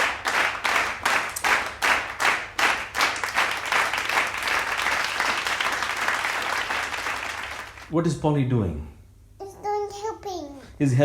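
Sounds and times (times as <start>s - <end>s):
hands clapping: 0.0s - 7.9s.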